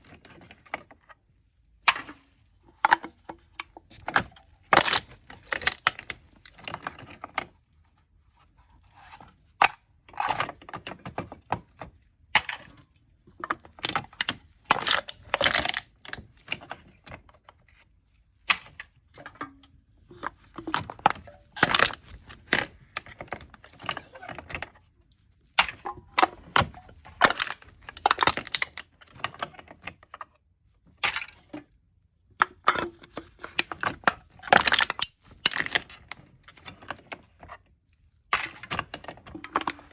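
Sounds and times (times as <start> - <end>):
drink cans being crushed: 2.8 - 7.4, 12.4 - 17.3, 18.5 - 24.8, 25.6 - 30.0, 32.4 - 37.3, 38.3 - 39.9.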